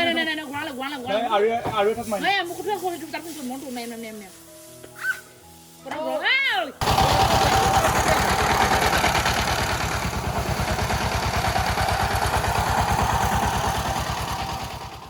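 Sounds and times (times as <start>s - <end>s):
engine idling: 6.8s - 15.0s.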